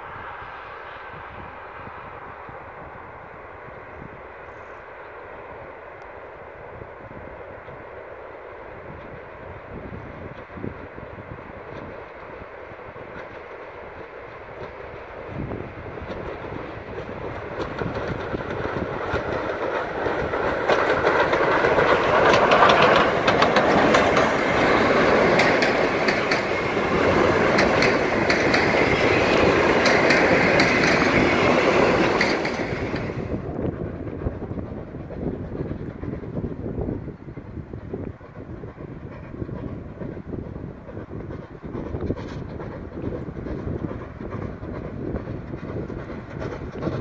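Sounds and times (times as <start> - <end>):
steam train passing: 0.0 - 47.0
carriages rumbling: 16.4 - 34.2
wheel clicks over rail joints: 17.5 - 26.7.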